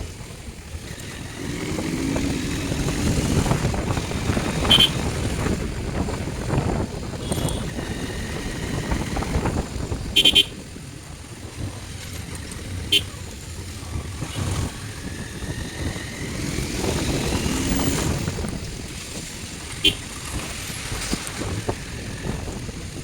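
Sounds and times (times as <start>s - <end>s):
motorcycle engine and road rumble: 0.0s - 23.0s
vehicle horn beeps: 4.6s - 5.0s, 7.2s - 7.8s, 10.1s - 10.6s.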